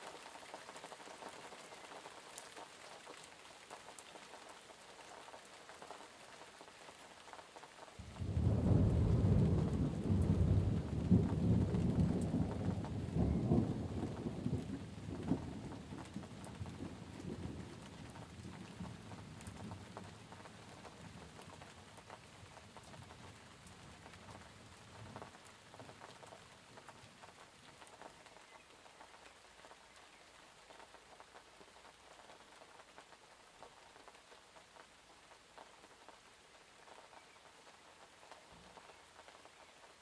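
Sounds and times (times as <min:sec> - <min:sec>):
raindrops pattering: 0:00.0 - 0:40.0
low rumble of thunder: 0:08.0 - 0:26.0.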